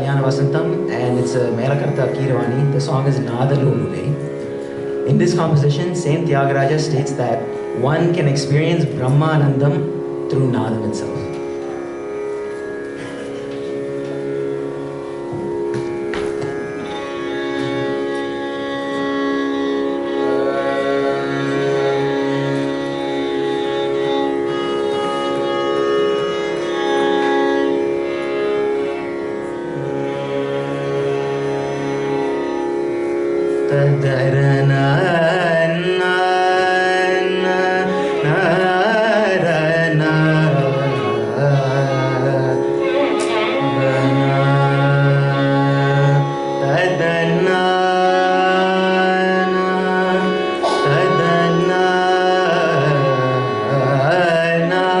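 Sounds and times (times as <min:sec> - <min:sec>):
tanpura drone: 0:00.0 - 0:55.0
man singing ornamented notes: 0:19.4 - 0:24.0, 0:33.7 - 0:55.0.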